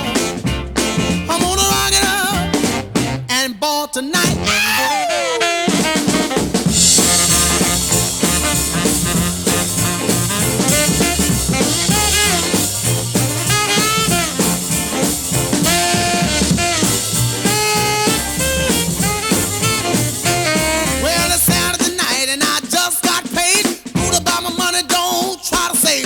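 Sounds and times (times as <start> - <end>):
driving drum beat: 0.0 - 3.3, 4.2 - 26.0
saxophone solo: 0.0 - 3.4, 4.2 - 21.8.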